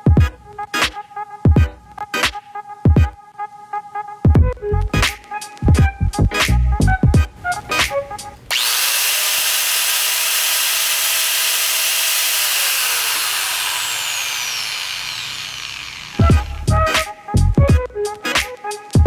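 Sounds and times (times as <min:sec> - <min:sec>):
angle grinder running: 0:07.4 - 0:16.9.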